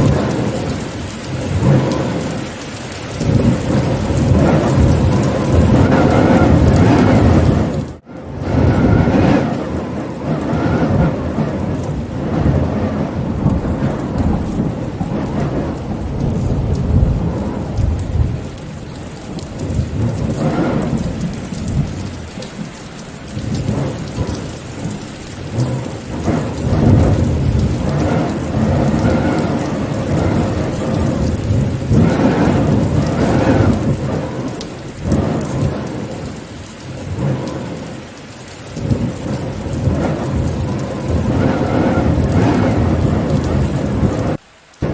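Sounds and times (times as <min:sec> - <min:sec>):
steady rain: 0:00.0 - 0:44.9
thunder rumbles: 0:00.0 - 0:44.9.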